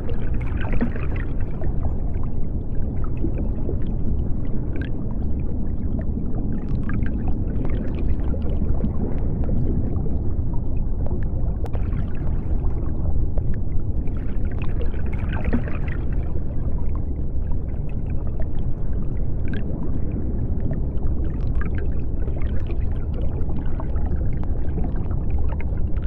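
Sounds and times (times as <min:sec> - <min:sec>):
low rumble of water: 0:00.0 - 0:26.0
small bubbling pops and clicks: 0:10.9 - 0:13.6.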